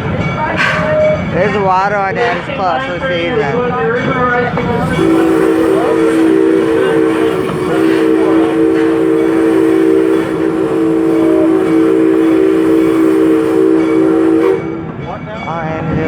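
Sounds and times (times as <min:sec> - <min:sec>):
steam locomotive chime whistle: 0:04.2 - 0:16.0.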